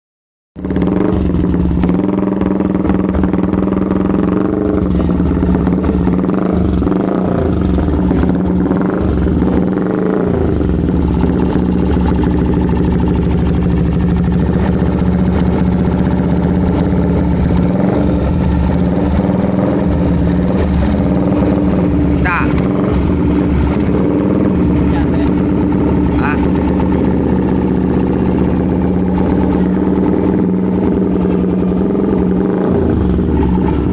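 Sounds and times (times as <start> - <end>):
motorcycle engine running: 0.6 - 33.9.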